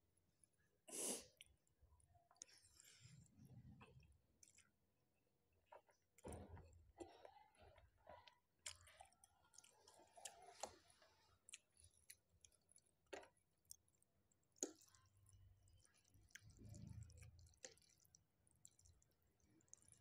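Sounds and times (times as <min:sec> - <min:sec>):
chewing and slurping noodles: 0:05.7 - 0:20.0.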